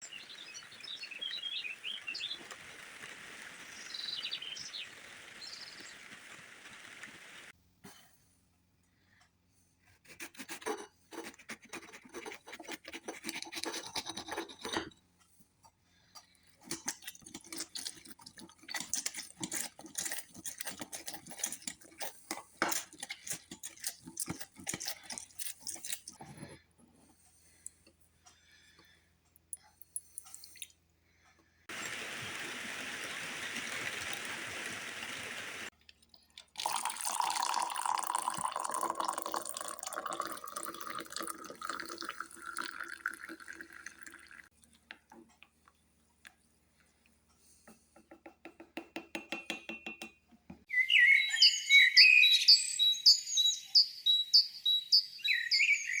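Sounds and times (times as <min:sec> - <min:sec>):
rain hiss: 0:00.0 - 0:07.5, 0:31.7 - 0:35.7
small birds chirping: 0:00.0 - 0:07.5, 0:31.7 - 0:35.7, 0:50.7 - 0:56.0
scratching rubbing and clicking: 0:10.2 - 0:14.9, 0:16.6 - 0:26.6.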